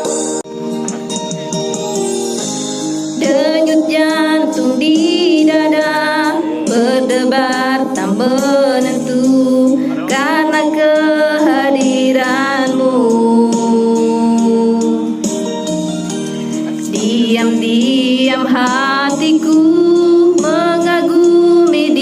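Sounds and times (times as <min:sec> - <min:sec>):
instrumental backing: 0:00.0 - 0:22.0
woman singing a slow ballad: 0:03.2 - 0:15.3, 0:16.8 - 0:22.0.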